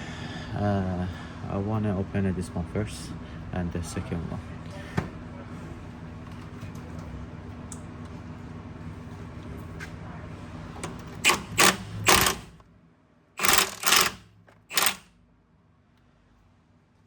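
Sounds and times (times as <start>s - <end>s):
tool mechanical bursts: 11.2s - 12.6s, 13.4s - 15.1s.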